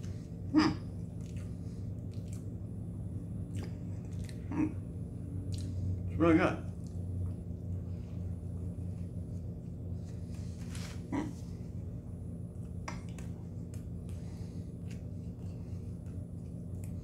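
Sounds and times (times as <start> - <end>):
steady low hum: 0.0 - 17.0
person chewing: 1.1 - 2.6, 3.5 - 4.8.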